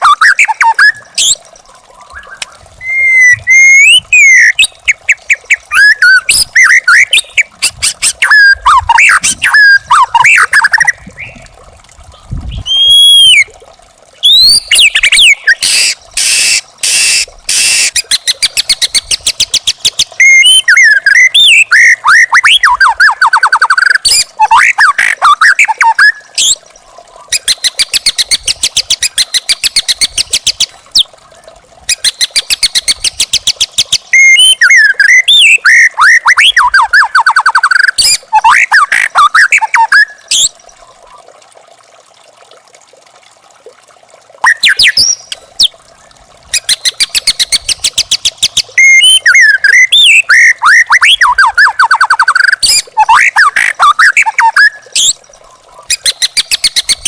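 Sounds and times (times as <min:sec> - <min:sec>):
bird singing: 0:33.9 - 0:40.5.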